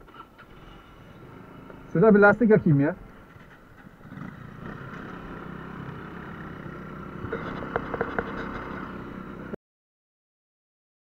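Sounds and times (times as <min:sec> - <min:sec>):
small motorcycle engine revving: 0:00.1 - 0:02.3, 0:03.0 - 0:09.6
rear tyre spinning: 0:03.1 - 0:09.5.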